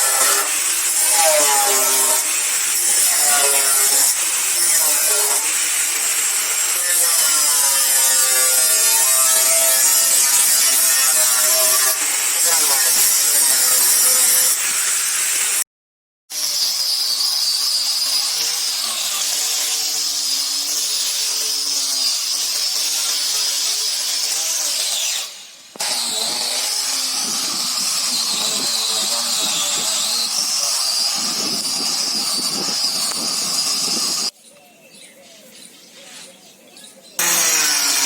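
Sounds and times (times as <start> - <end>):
power tool whining: 0.0 - 15.6, 16.4 - 34.3, 37.2 - 38.0.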